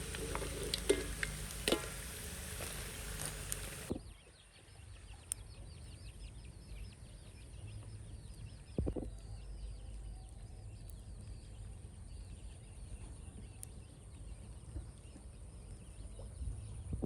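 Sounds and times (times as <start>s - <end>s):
birds chirping rapidly: 0.0s - 3.9s
sizzling frying: 0.0s - 3.9s.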